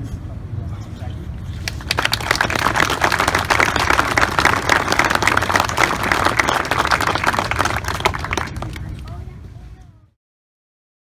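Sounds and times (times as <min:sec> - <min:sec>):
low steady rumble: 0:00.1 - 0:10.0
crowd applauding: 0:01.6 - 0:09.1.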